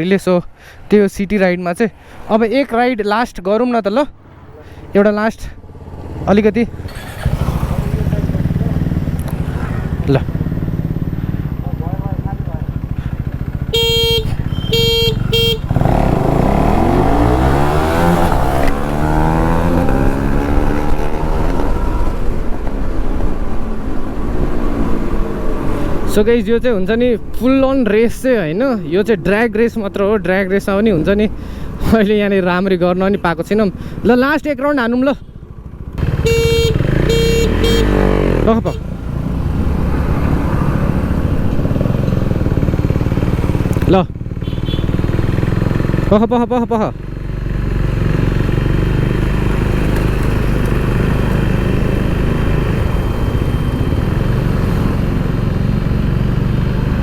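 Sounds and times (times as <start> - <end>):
motorcycle engine revving: 4.3 - 26.1, 35.4 - 57.0
horn beeps: 13.6 - 16.1, 36.1 - 39.1.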